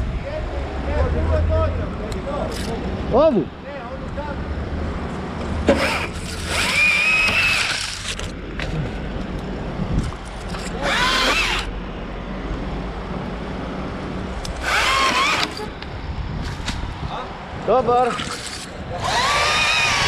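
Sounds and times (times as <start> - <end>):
chainsaw revving: 5.7 - 8.2, 10.7 - 11.7, 14.6 - 15.7, 19.0 - 20.0
wind noise on microphone: 9.5 - 11.2, 14.1 - 20.0.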